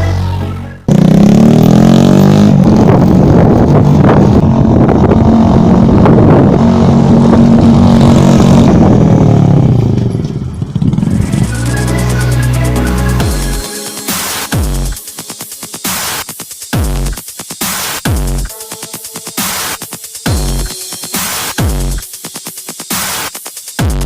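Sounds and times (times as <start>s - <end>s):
loud motorcycle engine revving: 0.1s - 13.7s.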